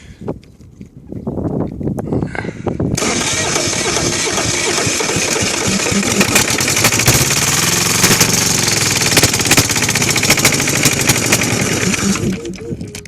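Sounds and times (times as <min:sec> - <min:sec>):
diesel engine running roughly: 0:03.0 - 0:13.0.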